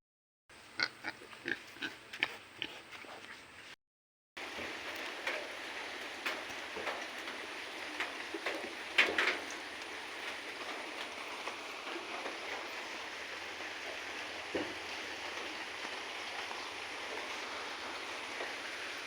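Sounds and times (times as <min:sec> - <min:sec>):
rain pattering on surfaces: 0:04.4 - 0:19.0.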